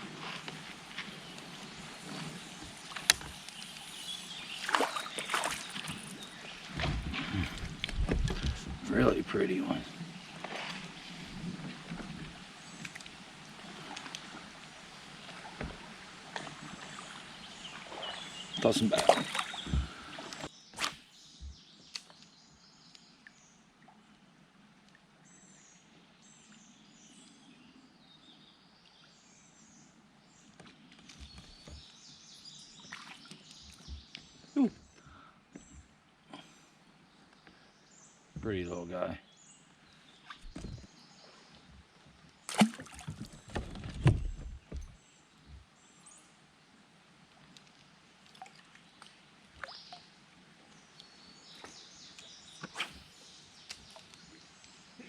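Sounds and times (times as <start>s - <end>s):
water drips and splashes: 0.3s - 20.5s, 32.8s - 34.7s, 40.2s - 45.6s, 47.2s - 54.8s
soft low thumps: 6.8s - 9.1s, 40.4s - 40.9s, 43.0s - 45.0s.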